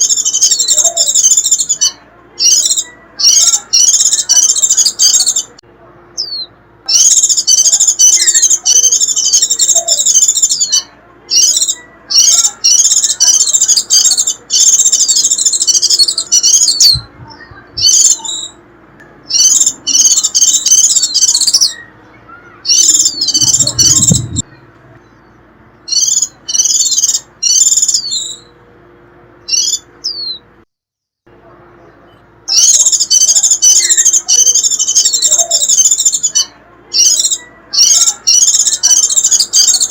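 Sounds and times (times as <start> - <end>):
bird twittering call: 6.2 - 18.6, 19.2 - 28.6, 29.4 - 30.4, 32.5 - 39.9.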